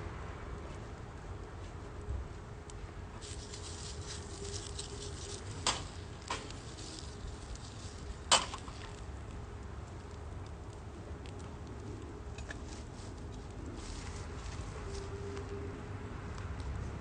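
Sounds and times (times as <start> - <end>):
wood fire crackling: 0.9 - 15.5
sharp pops from fire: 5.6 - 6.7, 8.2 - 9.0.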